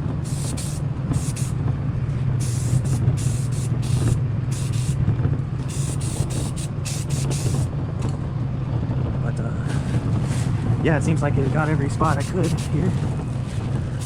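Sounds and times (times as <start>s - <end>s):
spray paint can hissing: 0.2s - 1.6s, 2.4s - 5.0s, 5.6s - 7.7s, 12.0s - 12.8s.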